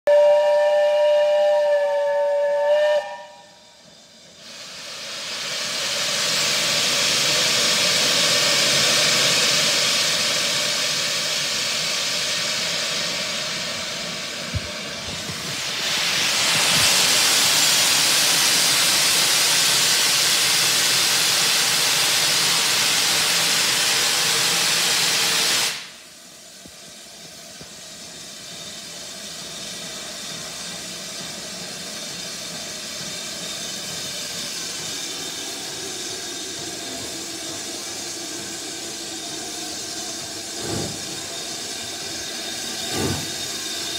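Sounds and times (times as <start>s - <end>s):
steam locomotive whistle: 0.1s - 3.9s
steam hissing: 0.1s - 43.9s.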